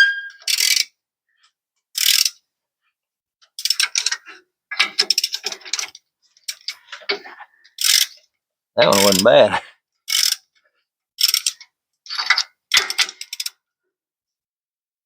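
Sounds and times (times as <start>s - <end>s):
socket ratchet clicking: 11.2s - 11.6s.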